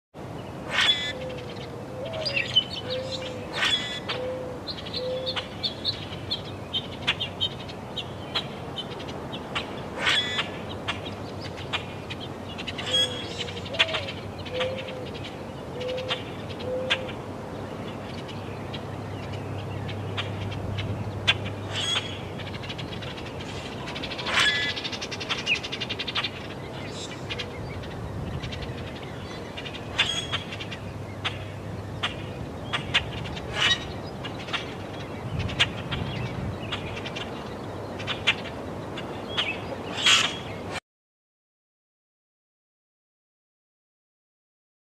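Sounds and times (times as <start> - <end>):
low wind rumble: 0.2 - 40.8
bird hooting call: 0.7 - 5.5, 12.8 - 17.2, 21.2 - 22.2.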